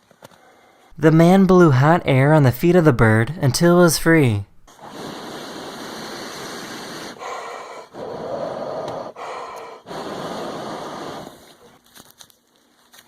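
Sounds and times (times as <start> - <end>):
man blowing breath: 4.7 - 11.7.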